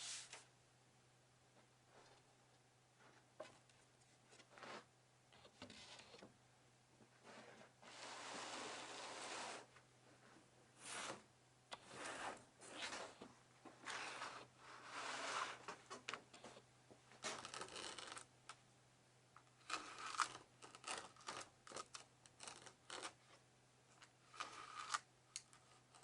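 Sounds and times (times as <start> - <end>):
scrapes and rustles: 11.8 - 16.6.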